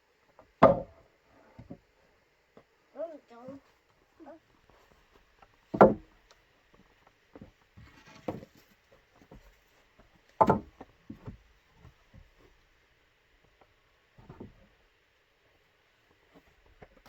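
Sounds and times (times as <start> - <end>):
loud sharp strikes on wood: 0.6 - 1.0, 5.7 - 6.1, 10.4 - 10.7.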